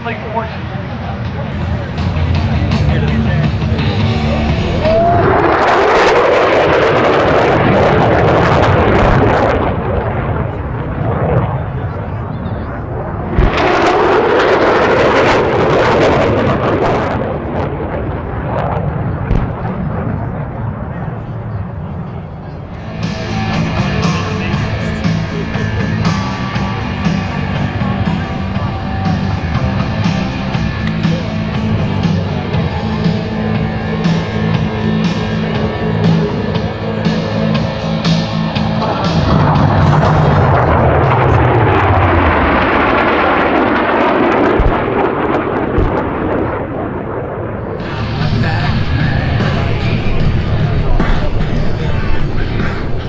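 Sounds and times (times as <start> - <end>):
aircraft engine roar flying past: 0.0 - 53.0
driving drum beat: 1.5 - 5.2, 22.9 - 40.6, 47.8 - 53.0
rock music with electric guitar: 1.5 - 9.4, 22.8 - 41.8, 47.8 - 53.0.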